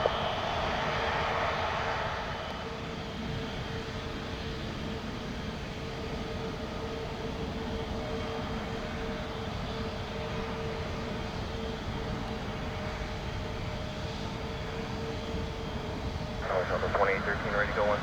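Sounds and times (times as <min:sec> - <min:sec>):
jet engines running: 0:16.4 - 0:18.0.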